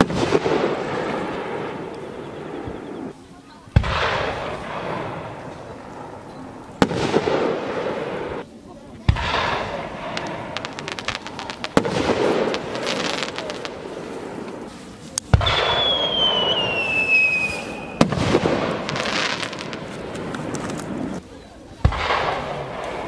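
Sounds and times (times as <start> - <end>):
fireworks crackling: 0.0 - 23.0
whistling firework shell: 15.4 - 18.2.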